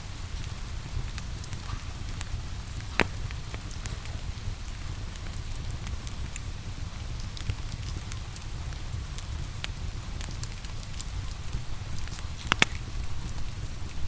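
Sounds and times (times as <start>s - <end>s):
falling rain hiss: 0.0s - 14.0s
wood fire crackling and popping: 0.2s - 14.0s.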